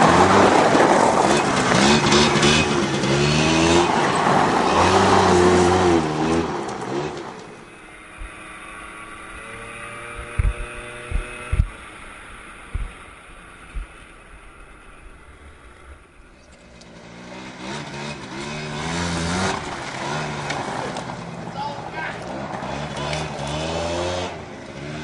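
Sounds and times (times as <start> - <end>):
small two-stroke engine running: 0.0 - 25.0
low thumps: 9.2 - 11.8, 12.6 - 16.4.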